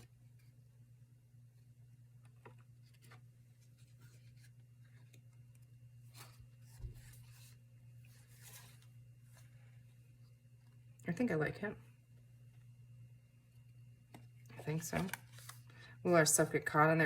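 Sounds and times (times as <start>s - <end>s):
steady low hum: 0.0s - 17.0s
paper rustling: 2.3s - 9.6s, 14.6s - 15.7s.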